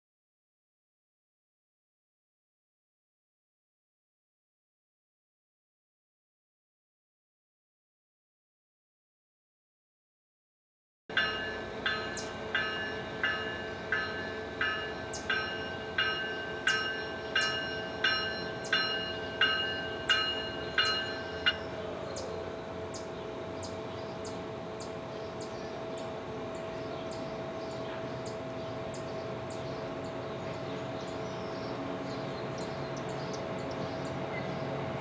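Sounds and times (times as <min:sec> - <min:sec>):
railroad bell ringing: 0:11.1 - 0:35.0.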